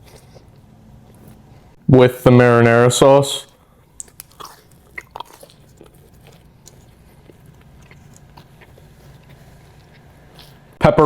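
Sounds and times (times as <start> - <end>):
low steady hum: 0.0 - 11.0
chewing food: 3.4 - 10.8
bite and mouth clicks: 3.9 - 10.6.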